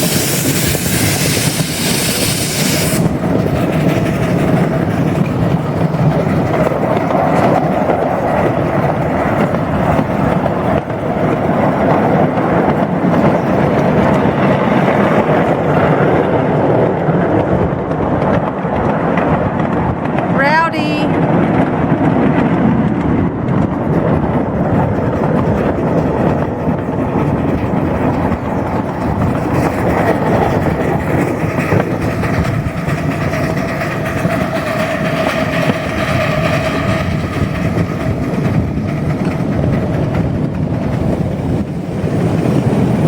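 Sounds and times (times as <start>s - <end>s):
train wheels rumbling on rail: 0.0s - 43.0s
clicking over rail joints: 0.4s - 16.4s.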